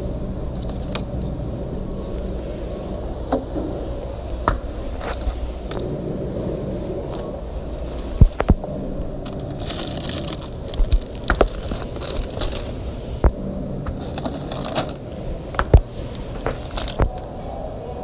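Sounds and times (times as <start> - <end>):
packaging rustling: 9.2 - 13.2, 13.9 - 17.3
items knocking when set down: 13.9 - 15.0.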